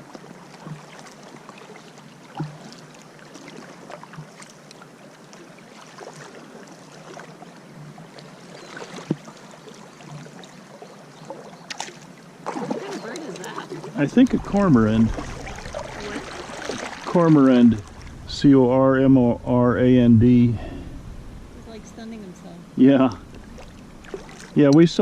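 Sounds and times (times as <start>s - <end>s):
small splashes: 0.0s - 7.4s, 8.1s - 18.4s, 23.0s - 25.0s
water lapping around hull: 0.0s - 25.0s
paddle knocking on boat: 13.1s - 18.4s.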